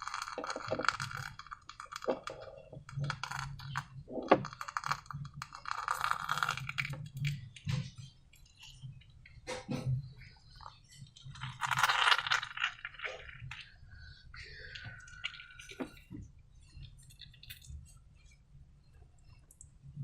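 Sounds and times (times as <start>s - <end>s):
slime crackling and squishing: 10.7s - 13.8s.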